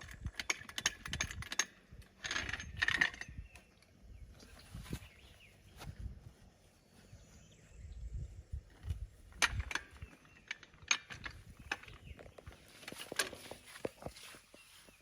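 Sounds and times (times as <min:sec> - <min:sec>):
sharp metallic clicks and knocks: 0:00.0 - 0:04.0, 0:08.7 - 0:14.1.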